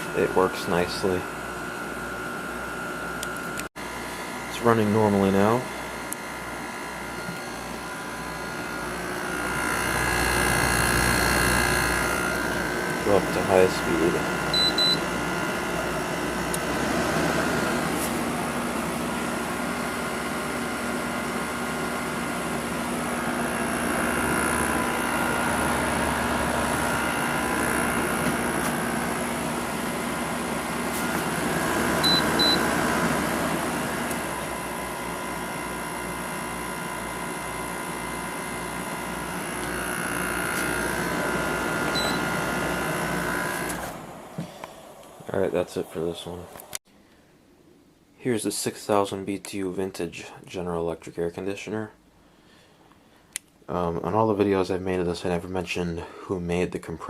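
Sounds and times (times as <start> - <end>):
air conditioner blowing hum: 0.0 - 57.0
short electronic beeps: 14.6 - 15.0, 32.0 - 32.6, 42.0 - 42.2.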